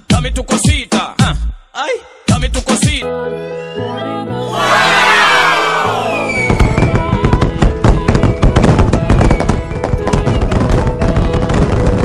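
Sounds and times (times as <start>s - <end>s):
background music: 0.0s - 12.0s
fireworks crackling and popping: 6.3s - 12.0s.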